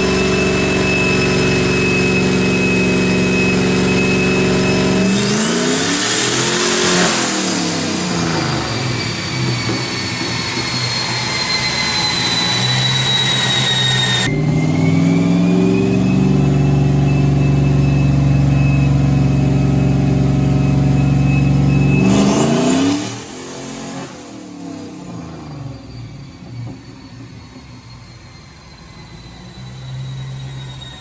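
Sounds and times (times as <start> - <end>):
engine running under load: 0.0 - 24.4
high whine: 0.0 - 31.0.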